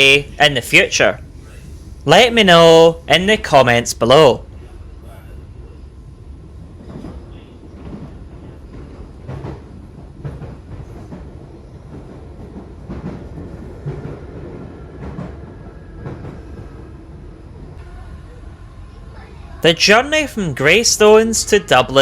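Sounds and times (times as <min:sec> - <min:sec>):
electric train rumble: 0:00.0 - 0:22.0
wheels clacking on track: 0:06.6 - 0:17.8.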